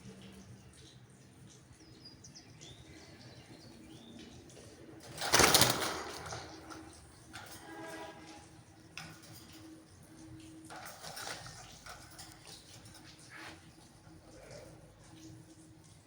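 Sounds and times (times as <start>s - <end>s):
parrot flapping wings: 5.0s - 7.6s.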